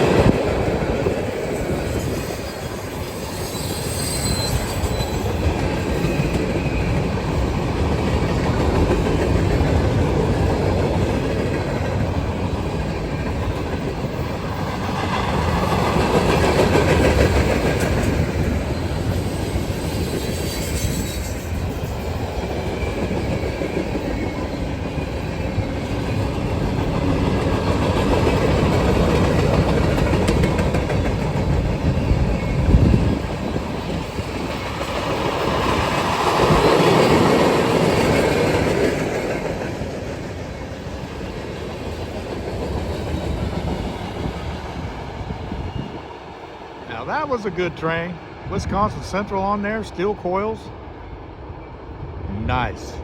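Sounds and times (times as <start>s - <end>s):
train rumble: 0.0s - 53.0s
wheel squeal: 1.5s - 7.2s, 18.7s - 24.6s
train wheels clacking over rail joints: 4.0s - 40.5s.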